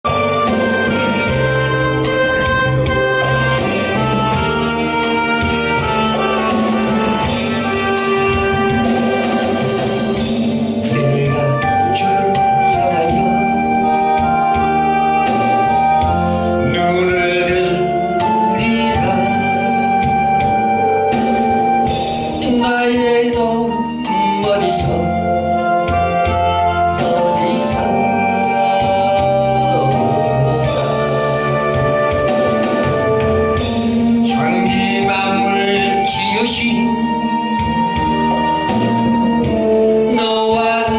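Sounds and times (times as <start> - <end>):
electronic organ chords: 0.0 - 40.9
person singing gospel song: 10.8 - 15.3, 15.9 - 20.1, 22.4 - 25.4, 26.0 - 31.2, 34.2 - 38.0, 39.6 - 40.9.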